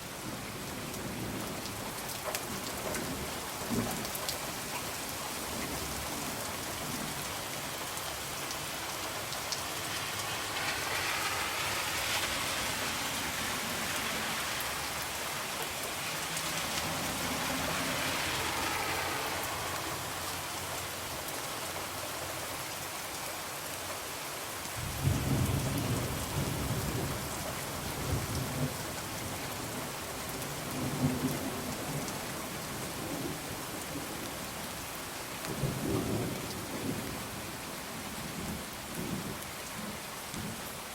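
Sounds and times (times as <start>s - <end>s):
rain falling on a window: 0.0s - 40.9s
low rolling thunder: 24.8s - 28.8s.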